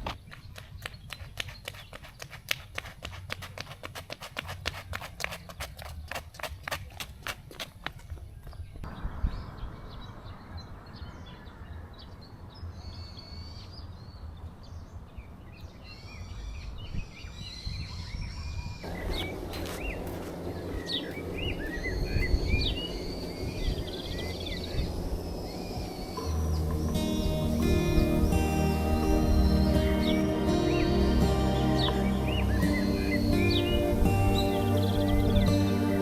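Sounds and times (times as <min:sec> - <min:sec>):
small birds chirping: 0:00.0 - 0:36.0
low rumble: 0:18.8 - 0:36.0.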